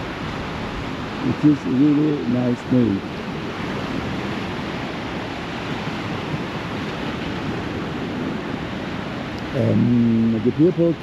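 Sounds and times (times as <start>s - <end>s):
sea surf washing onto beach: 0.0s - 11.0s.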